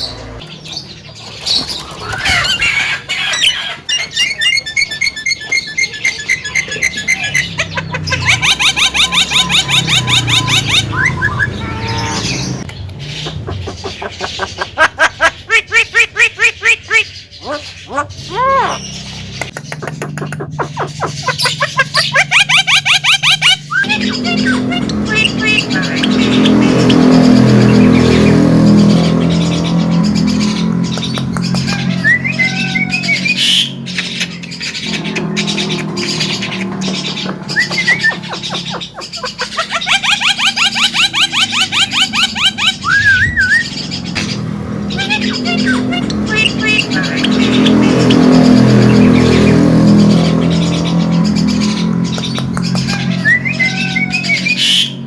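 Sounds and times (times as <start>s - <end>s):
myna chattering and squawking: 0.0s - 55.0s
rising whistled chirps: 8.2s - 12.3s, 40.0s - 44.3s.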